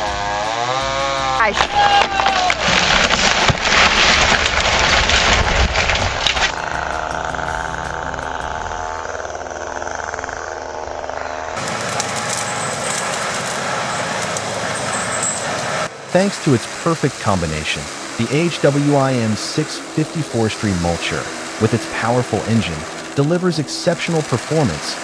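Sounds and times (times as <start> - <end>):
heavy machinery engine running: 0.0 - 25.0.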